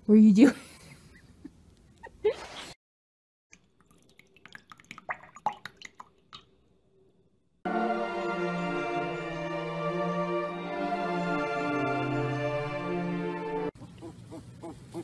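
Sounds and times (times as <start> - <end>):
water dripping and splashing: 3.5 - 6.6
music: 7.6 - 13.8.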